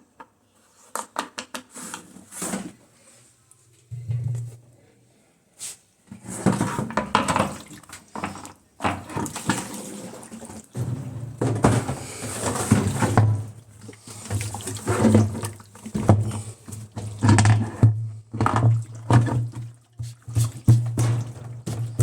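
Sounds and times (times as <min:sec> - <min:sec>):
water running and sloshing: 0:06.4 - 0:22.0.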